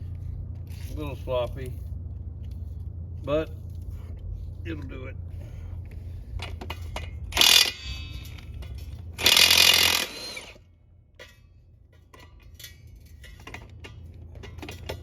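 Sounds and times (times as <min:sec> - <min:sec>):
impact wrench hammering lug nuts: 0:06.7 - 0:08.5, 0:09.2 - 0:10.6.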